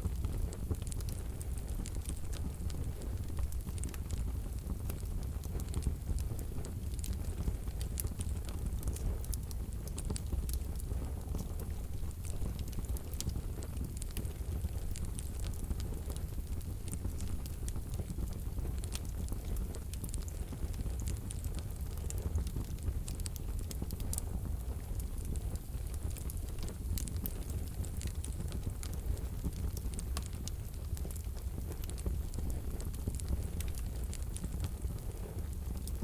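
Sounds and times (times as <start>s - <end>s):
low rumble of flames: 0.0s - 36.0s
wood crackling and snapping: 25.9s - 34.8s.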